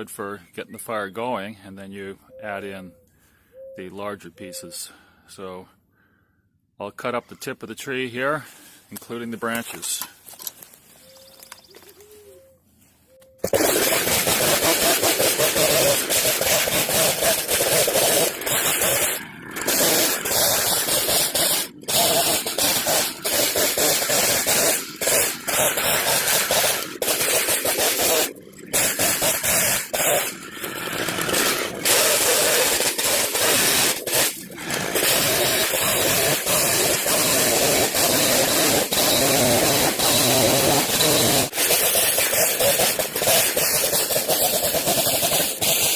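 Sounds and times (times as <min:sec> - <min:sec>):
chainsaw cutting wood: 0:13.4 - 0:45.9.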